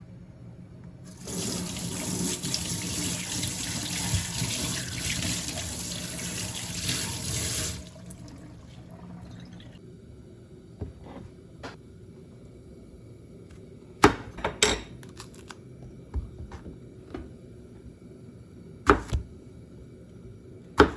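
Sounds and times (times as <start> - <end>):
tap running into a sink: 2.4 - 5.5.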